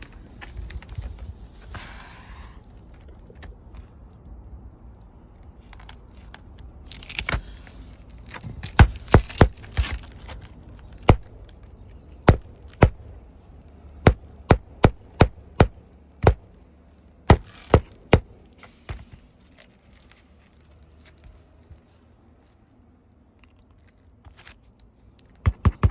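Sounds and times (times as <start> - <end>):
hammer striking nails: 11.1 - 11.3, 12.3 - 13.1, 14.1 - 16.5, 17.3 - 19.1, 25.4 - 25.9
rustling: 16.4 - 25.9.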